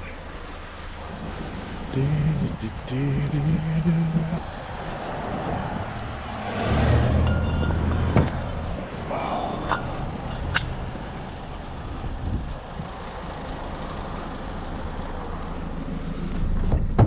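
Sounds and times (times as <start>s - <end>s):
vehicle engine idling: 0.0s - 17.0s
sharp metallic clinks: 7.2s - 8.7s.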